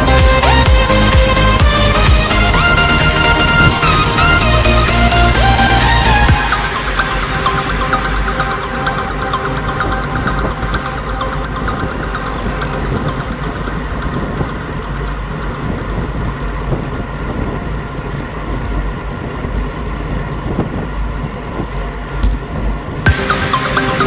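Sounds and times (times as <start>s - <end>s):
loud music: 0.0s - 15.1s, 23.1s - 24.0s.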